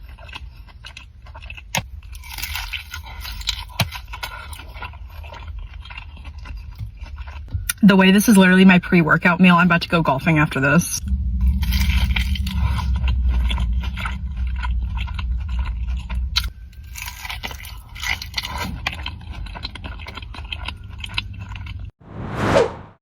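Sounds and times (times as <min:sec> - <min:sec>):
chewing and crunching food: 0:00.0 - 0:22.0
low rumble: 0:07.5 - 0:23.0
whoosh: 0:22.0 - 0:23.0.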